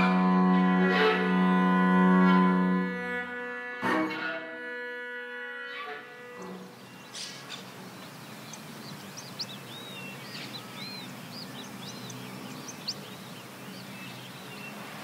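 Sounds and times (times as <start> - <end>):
outdoor background hiss: 4.4 - 15.0
small birds chirping: 6.2 - 15.0
faint ticks: 7.5 - 9.6.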